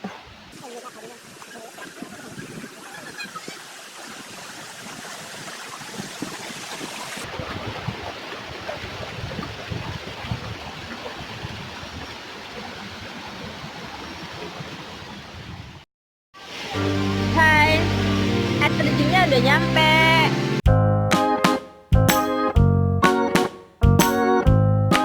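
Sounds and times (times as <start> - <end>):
stream and waterfall rushing: 0.1 - 15.8, 16.4 - 20.6.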